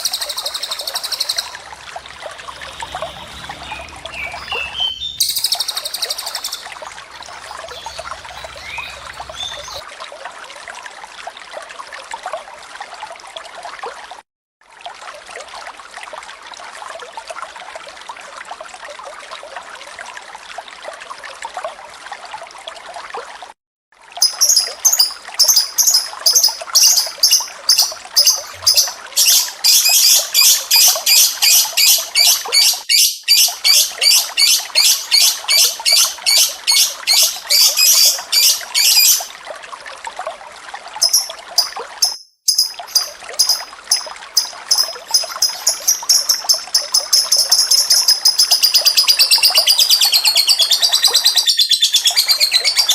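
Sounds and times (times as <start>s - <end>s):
bird chirping shrilly: 0.0s - 9.8s, 24.2s - 39.3s, 41.0s - 52.9s
water trickling: 0.0s - 51.4s, 52.0s - 52.9s.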